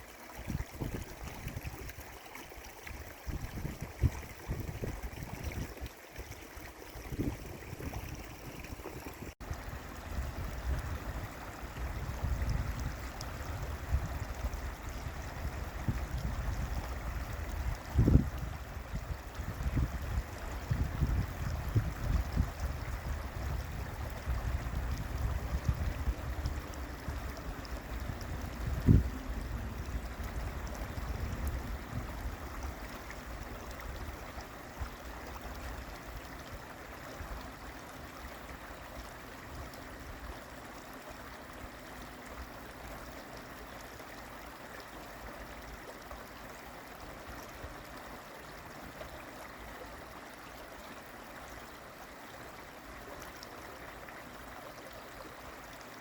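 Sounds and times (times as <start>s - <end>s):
flowing water: 0.0s - 56.0s
low uneven rumble: 3.1s - 34.8s.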